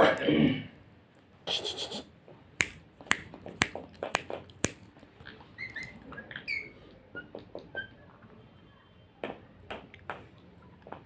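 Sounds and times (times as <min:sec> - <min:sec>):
finger snaps: 0:02.6 - 0:04.8.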